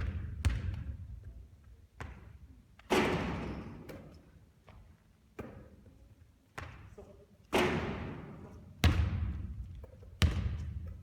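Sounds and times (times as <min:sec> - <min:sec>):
basketball bouncing: 0:00.0 - 0:00.9, 0:10.2 - 0:10.9.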